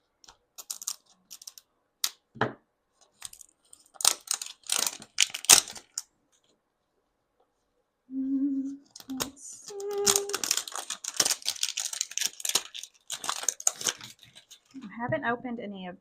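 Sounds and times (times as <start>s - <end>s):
packaging clicks and taps: 0.2s - 2.2s, 8.9s - 14.7s
wrapping tearing and rustling: 0.6s - 1.6s, 3.0s - 6.1s, 8.8s - 14.8s.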